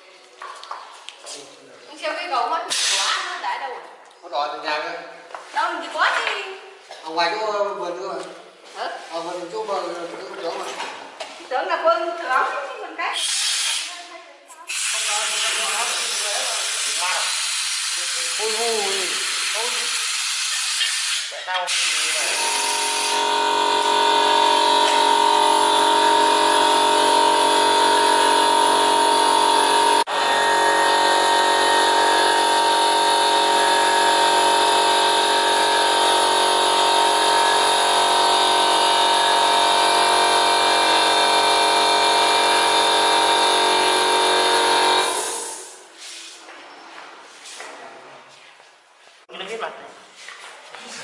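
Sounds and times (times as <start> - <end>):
power tool whining: 14.8 - 45.9.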